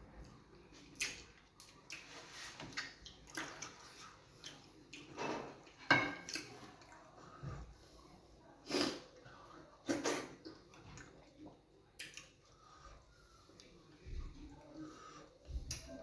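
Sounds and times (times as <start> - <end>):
wet eating slurps and squelches: 0.8 - 8.0.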